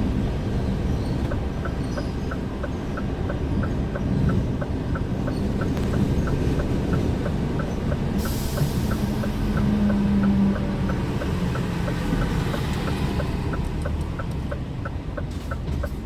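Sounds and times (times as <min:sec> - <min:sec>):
road noise: 0:00.0 - 0:16.0
truck diesel engine rumble: 0:00.0 - 0:16.0
turn indicator ticking: 0:00.0 - 0:16.0
hiss: 0:08.2 - 0:09.4.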